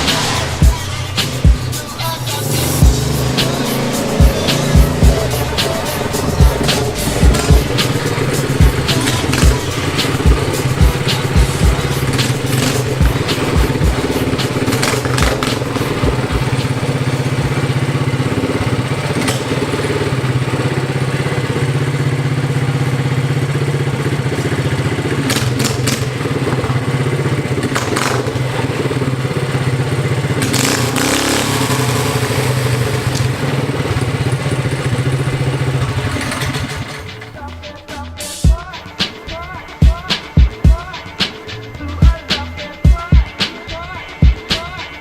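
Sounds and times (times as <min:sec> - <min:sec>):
mini bike engine running: 0:00.0 - 0:37.6
sharp clicks and knocks: 0:25.3 - 0:26.2.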